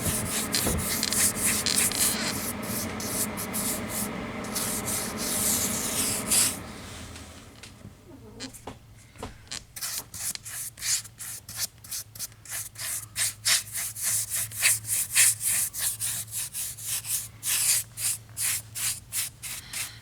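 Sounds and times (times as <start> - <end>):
paintbrush scrubbing a surface: 0.0 - 6.6, 9.8 - 20.0.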